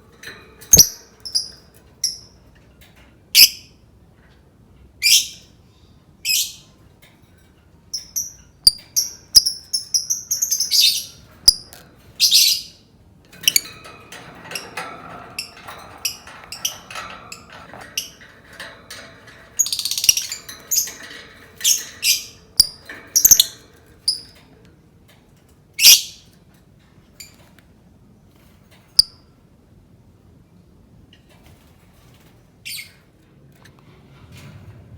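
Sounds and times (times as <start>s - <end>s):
lovebird chirping and squawking: 8.6s - 12.8s, 19.6s - 21.0s, 25.8s - 26.2s.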